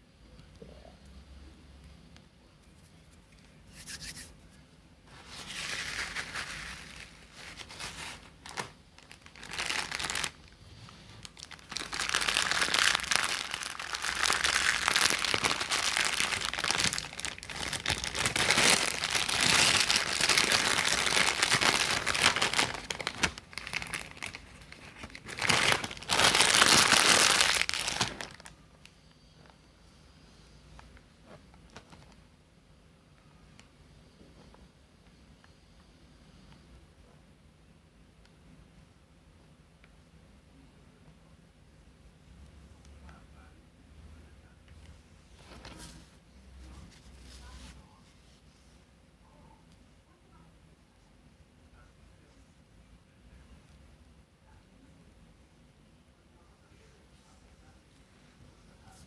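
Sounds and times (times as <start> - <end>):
crinkling and crumpling: 5.1 - 29.6, 30.8 - 32.2, 45.3 - 48.4.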